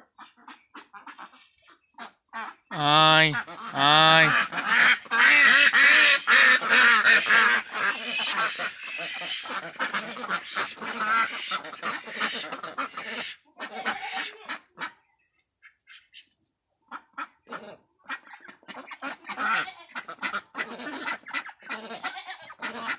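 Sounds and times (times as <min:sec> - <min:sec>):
ducks quacking: 0:02.7 - 0:15.0, 0:17.0 - 0:22.9.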